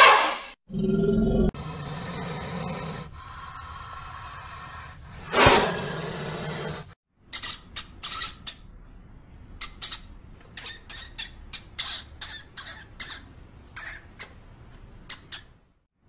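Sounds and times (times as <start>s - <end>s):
snake hissing: 1.6s - 7.0s
hamster squeaking: 9.6s - 14.4s.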